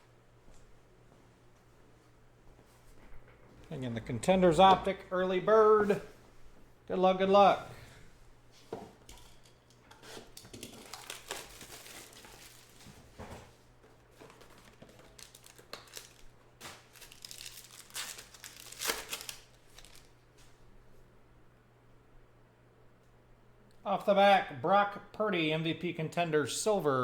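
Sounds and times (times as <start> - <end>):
card pack wrapper crinkling: 10.4 - 13.1, 14.1 - 20.2.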